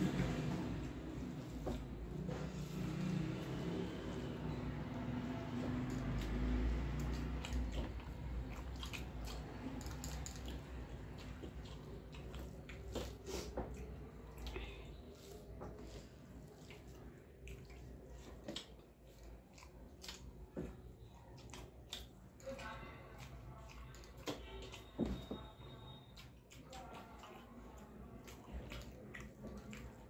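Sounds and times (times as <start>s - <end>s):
wet chewing and lip-smacking: 0.0s - 30.0s.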